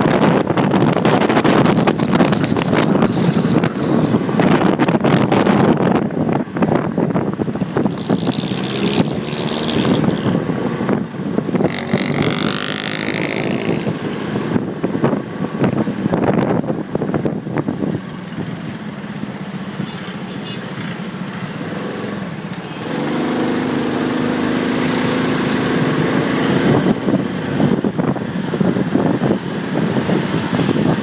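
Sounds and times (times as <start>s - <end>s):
wind buffeting microphone: 0.0s - 19.4s, 23.1s - 31.0s
motorcycle engine: 7.5s - 15.0s, 18.0s - 29.4s.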